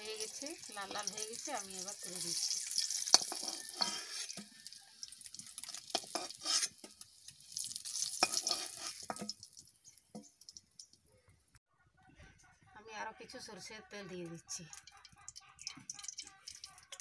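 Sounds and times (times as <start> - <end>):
metal spatula scraping pan: 0.0 - 7.0, 7.8 - 9.4
eggs sizzling in oil: 0.0 - 11.1, 14.5 - 17.0.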